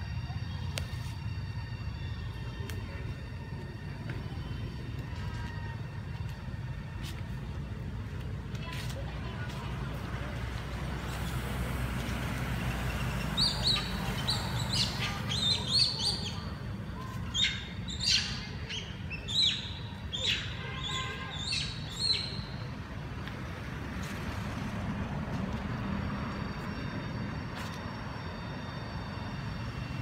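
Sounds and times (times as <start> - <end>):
road traffic rumble: 0.0 - 30.0
birds chirping: 12.4 - 22.7.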